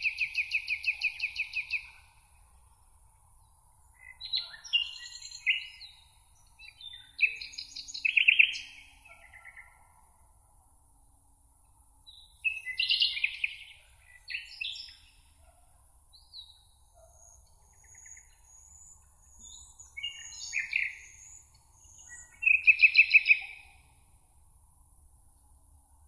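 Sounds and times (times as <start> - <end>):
songbirds chirping and warbling: 3.3 - 10.0, 12.1 - 24.0.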